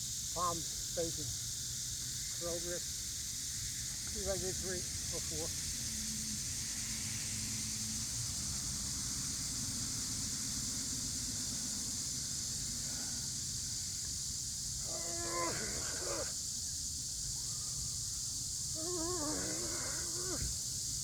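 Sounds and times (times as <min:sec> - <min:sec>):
cicada chorus: 0:00.0 - 0:21.0
person groaning with effort: 0:14.8 - 0:16.3, 0:18.8 - 0:20.5.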